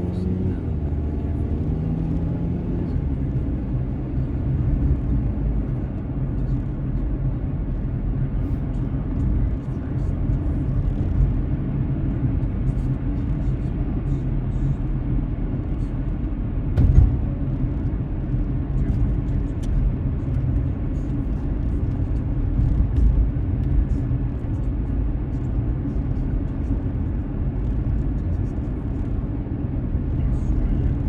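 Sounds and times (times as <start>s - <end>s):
car cabin road rumble: 0.0s - 31.0s
loud thump: 16.8s - 17.4s.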